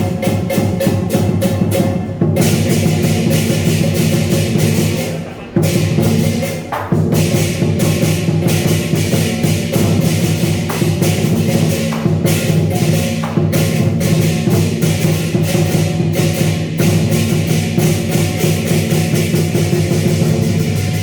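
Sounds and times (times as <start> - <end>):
clashing cymbals: 0.0 - 21.0
drum: 0.0 - 21.0
gong: 7.2 - 21.0.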